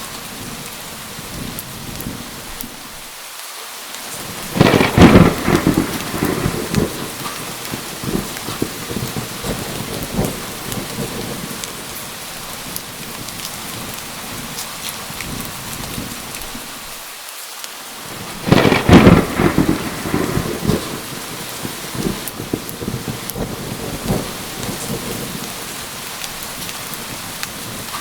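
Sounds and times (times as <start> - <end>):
heavy rain: 0.0 - 28.0
thunder crack rolling: 4.2 - 12.1, 18.1 - 28.0.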